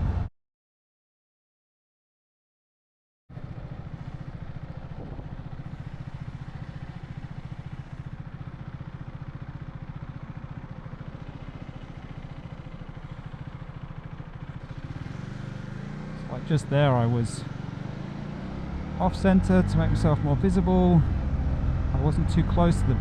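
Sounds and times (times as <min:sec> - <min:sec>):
motorcycle engine running: 0:03.3 - 0:23.0.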